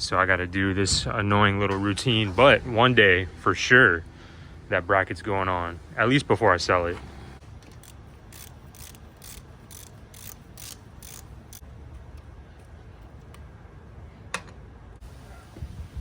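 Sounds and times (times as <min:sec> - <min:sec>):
ratchet clicking: 0:07.7 - 0:11.6.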